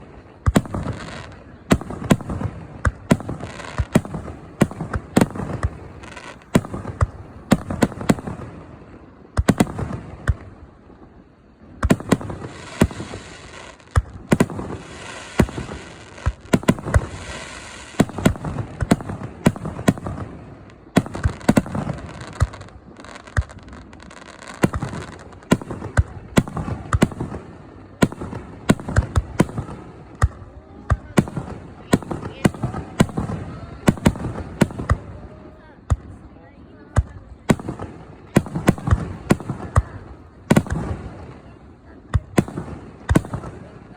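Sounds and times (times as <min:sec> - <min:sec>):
continuous hiss: 0:00.0 - 0:43.9.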